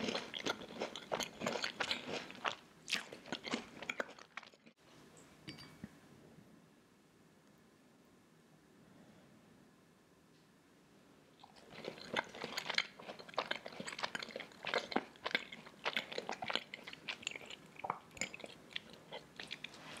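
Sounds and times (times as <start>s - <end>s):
person chewing cookie crunching: 0.0s - 4.8s, 11.4s - 20.0s.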